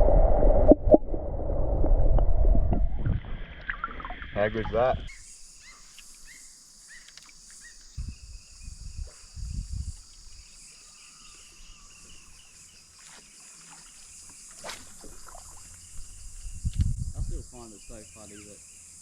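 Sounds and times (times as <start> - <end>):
low thumps: 0.0 - 5.1
insects droning: 4.3 - 19.0
short chirping calls: 5.0 - 9.5.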